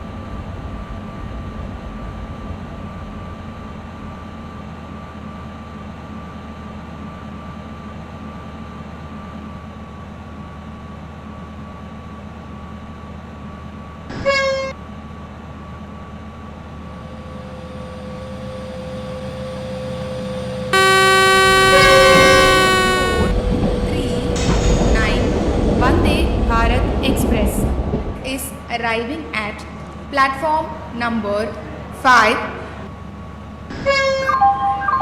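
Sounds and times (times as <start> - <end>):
train rumble: 0.0 - 6.4, 12.8 - 35.0
train horn: 20.8 - 25.5.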